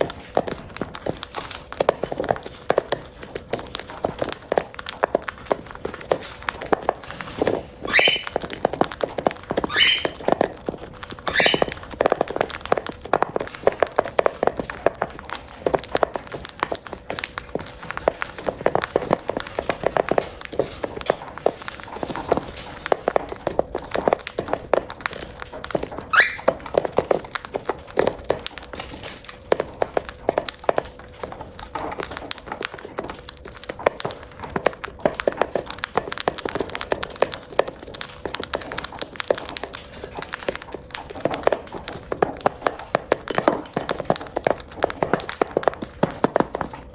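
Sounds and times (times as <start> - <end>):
beaks pecking at food: 0.0 - 46.9
short rising bird chirps: 7.9 - 8.3, 9.7 - 10.2, 11.3 - 11.7.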